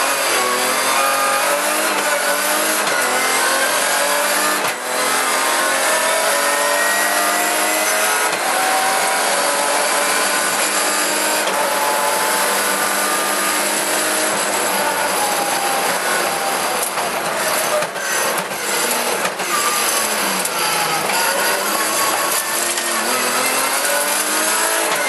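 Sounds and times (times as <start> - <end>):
rally car engine revving: 0.0 - 25.0
road and tyre noise: 0.0 - 25.0.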